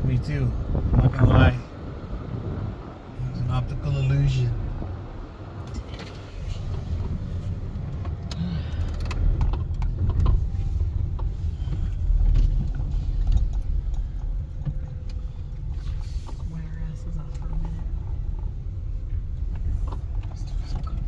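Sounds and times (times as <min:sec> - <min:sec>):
road and engine rumble: 0:00.0 - 0:21.0
light clicks and knocks: 0:05.6 - 0:21.0.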